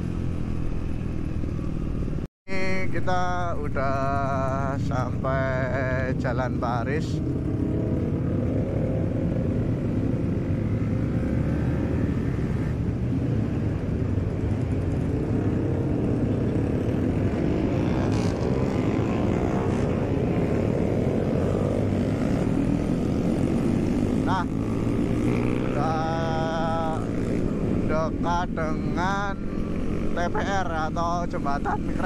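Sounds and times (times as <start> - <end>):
motorcycle engine running: 12.9 - 32.0.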